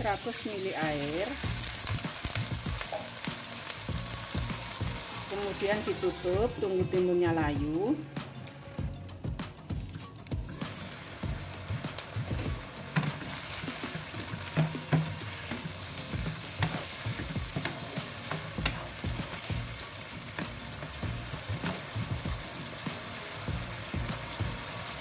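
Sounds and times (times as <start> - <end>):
vegetables sizzling in a wok: 0.0 - 25.0.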